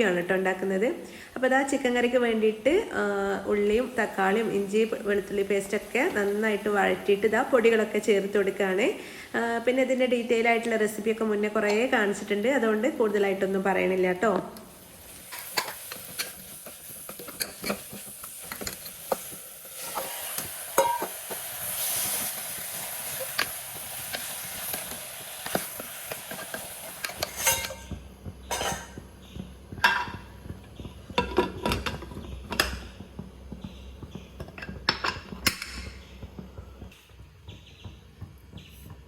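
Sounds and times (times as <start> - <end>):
food sizzling in a pan: 14.6 - 34.8
spoon clinking and scraping pan: 15.2 - 21.5, 23.0 - 29.0, 29.8 - 30.2
utensils clinking and knocking: 15.3 - 20.1, 20.8 - 21.3, 25.4 - 29.0.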